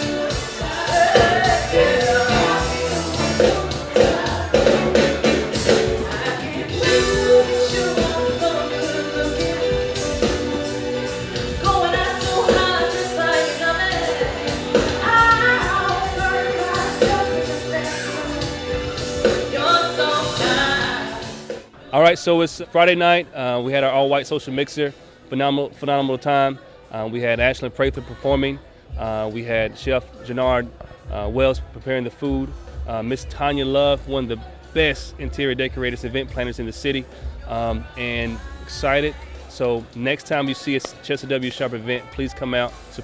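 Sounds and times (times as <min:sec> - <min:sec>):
person singing: 0:00.0 - 0:21.7
steady beat: 0:00.0 - 0:21.7, 0:27.4 - 0:39.9, 0:41.4 - 0:43.0.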